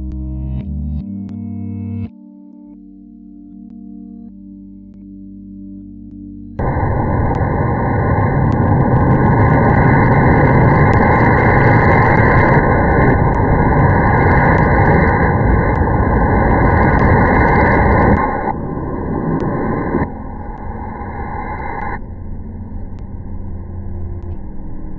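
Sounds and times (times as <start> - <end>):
electric fan airflow rushing: 6.6 - 24.9.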